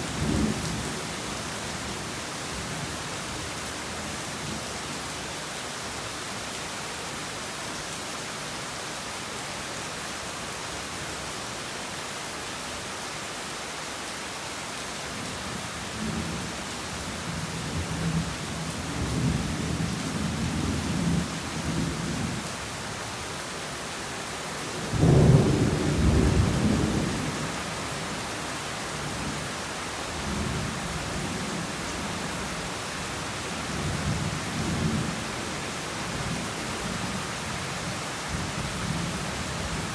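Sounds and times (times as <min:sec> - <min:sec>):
heavy rain hissing: 0:16.2 - 0:39.9.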